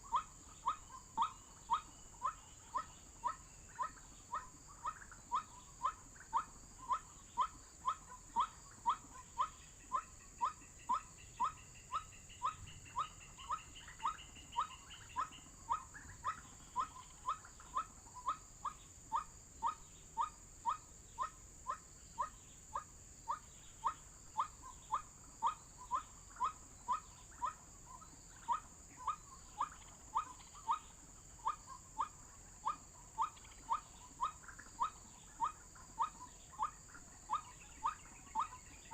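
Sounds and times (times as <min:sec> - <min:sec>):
waterhen call: 0:00.0 - 0:38.9.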